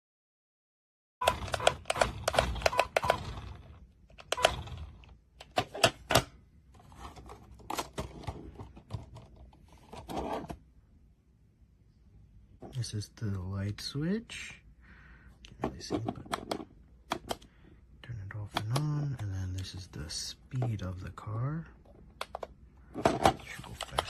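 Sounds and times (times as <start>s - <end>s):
hard plastic clicks and clatter: 15.6s - 17.5s, 22.1s - 24.0s.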